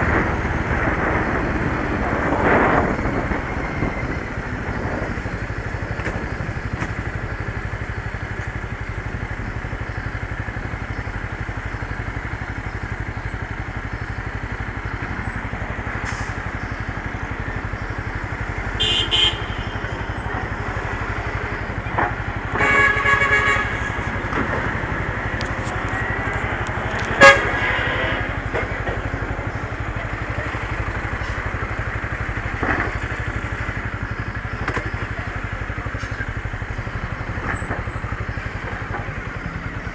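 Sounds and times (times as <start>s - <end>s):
motorcycle engine running: 0.0s - 39.9s
road and wind noise: 0.0s - 39.9s
vehicle horn honking: 18.5s - 21.6s, 22.3s - 29.2s.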